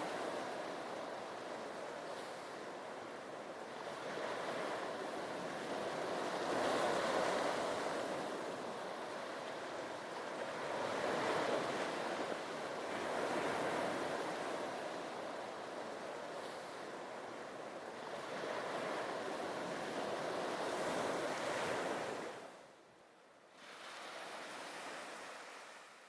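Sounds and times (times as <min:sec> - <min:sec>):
sea waves breaking on beach: 0:00.0 - 0:22.8, 0:23.5 - 0:26.0.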